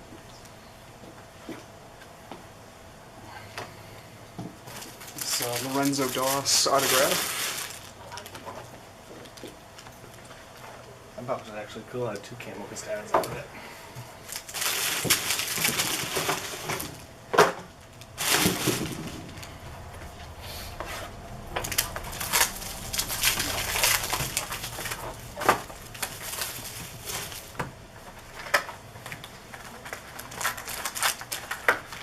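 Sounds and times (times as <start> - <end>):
wrappers crinkling and tearing: 4.7 - 11.0, 14.2 - 17.1, 17.8 - 19.6, 21.5 - 32.0.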